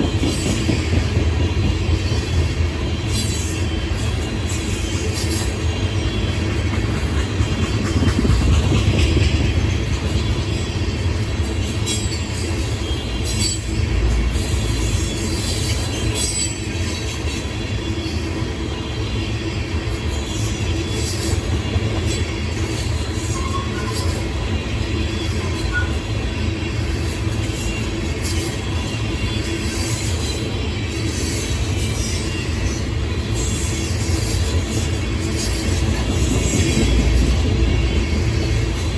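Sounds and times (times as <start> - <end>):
wheels clicking on rails: 0.0 - 13.8
train cars rumbling: 0.0 - 38.9.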